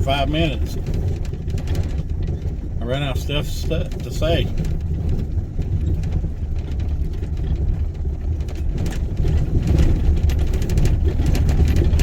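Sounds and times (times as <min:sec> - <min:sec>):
engine and tyres rumbling: 0:00.0 - 0:12.0
knocks and rattles: 0:00.0 - 0:12.0.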